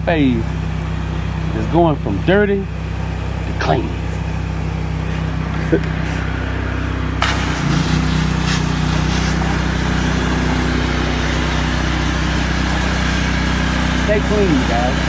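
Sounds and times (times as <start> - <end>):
pressure washer engine running: 0.0 - 15.0
water spray hissing: 7.2 - 15.0.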